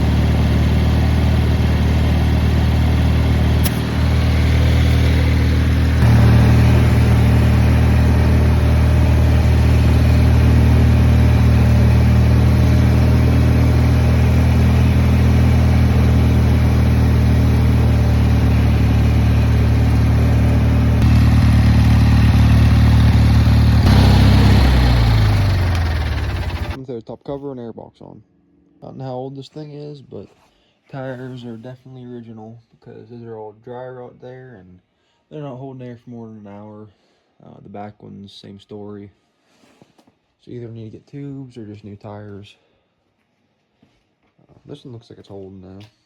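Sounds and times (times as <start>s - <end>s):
garden tractor engine running: 0.0s - 26.8s.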